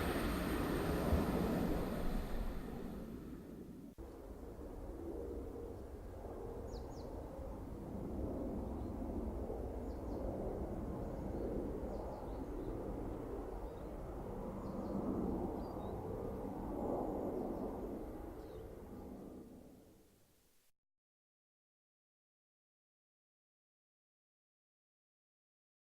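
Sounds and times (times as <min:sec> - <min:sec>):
diesel train rumbling: 0:00.0 - 0:03.9.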